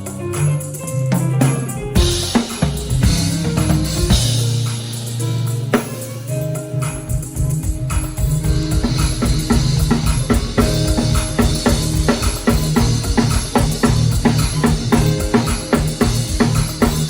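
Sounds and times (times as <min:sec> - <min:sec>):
bass line: 0:00.0 - 0:17.0
drum kit: 0:00.0 - 0:17.0.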